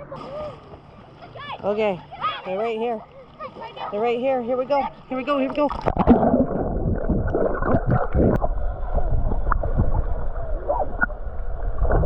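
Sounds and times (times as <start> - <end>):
underwater water gurgling: 3.2 - 12.0.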